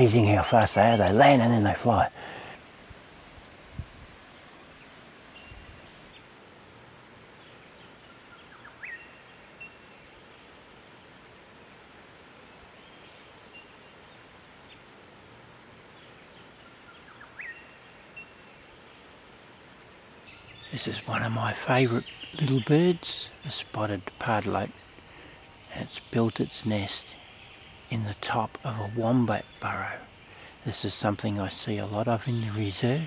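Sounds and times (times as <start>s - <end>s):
small bird calling: 15.9s - 19.0s, 20.3s - 33.0s.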